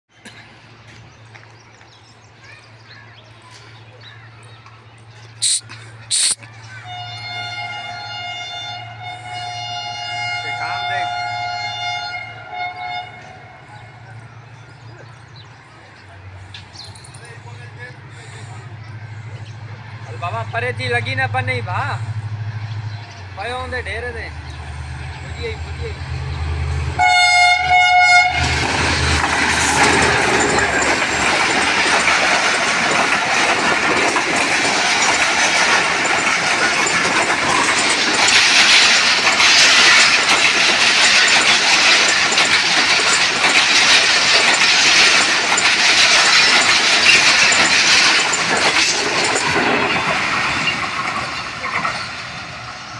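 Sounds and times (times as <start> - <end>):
locomotive horn blast: 6.8 - 13.9, 27.0 - 28.6
wheels clattering over rail joints: 27.2 - 52.9.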